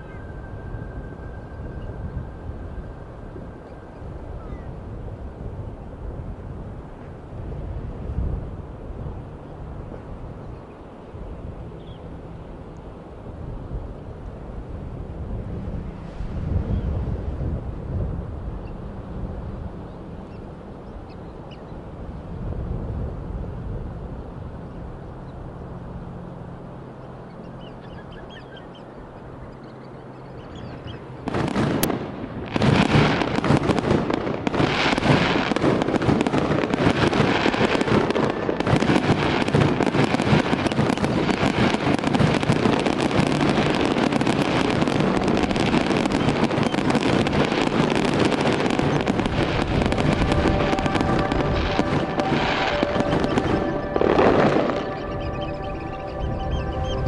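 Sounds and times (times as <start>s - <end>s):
low steady hum: 0.0s - 57.0s
rushing crashing water: 31.6s - 56.5s.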